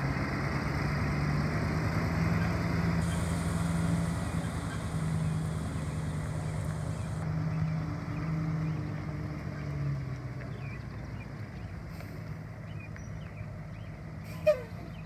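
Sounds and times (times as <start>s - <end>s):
truck engine idling: 0.4s - 7.4s.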